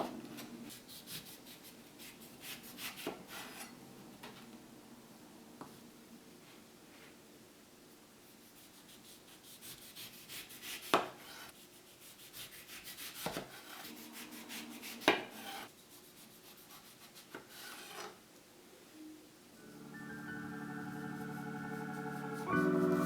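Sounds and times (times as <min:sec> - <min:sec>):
fine scraping strokes: 0:11.2 - 0:18.1.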